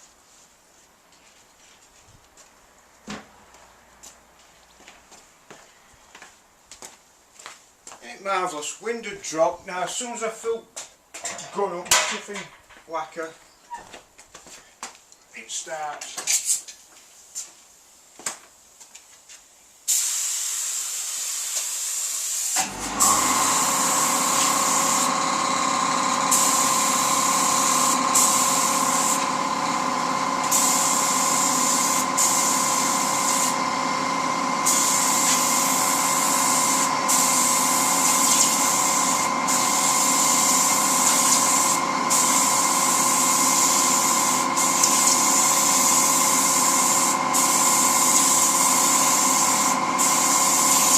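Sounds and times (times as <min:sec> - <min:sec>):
spray gun hissing: 0:19.9 - 0:33.8, 0:34.6 - 0:50.9
air compressor humming: 0:22.4 - 0:50.9.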